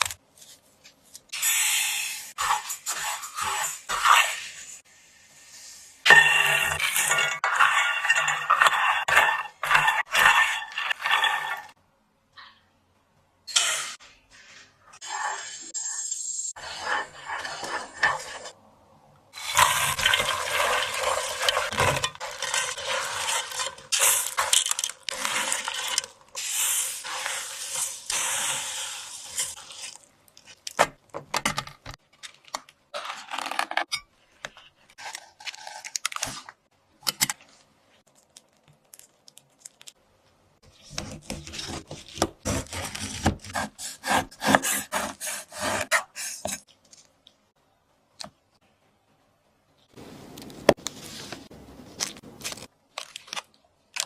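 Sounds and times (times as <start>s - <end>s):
rubbing and scraping of food: 2.3s - 4.8s, 5.4s - 11.8s, 16.6s - 18.6s, 19.4s - 30.6s, 32.9s - 36.5s, 40.6s - 47.0s.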